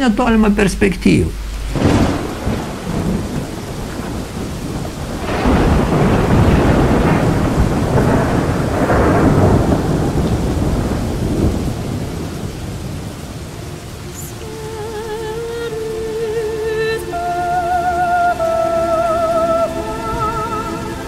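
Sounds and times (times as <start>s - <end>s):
thunder rolling: 0.0s - 16.5s
steady rain: 0.0s - 21.0s.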